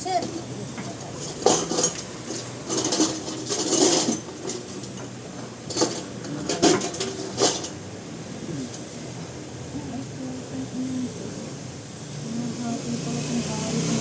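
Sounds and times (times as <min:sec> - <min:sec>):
metal tools clanking: 0:00.1 - 0:07.8.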